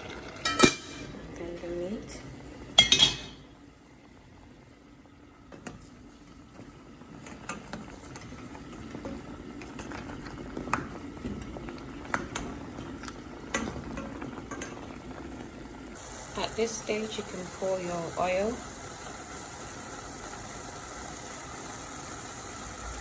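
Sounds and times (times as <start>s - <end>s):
pot of food bubbling: 0.0s - 23.0s
metal spoon knocking pot: 2.8s - 3.4s.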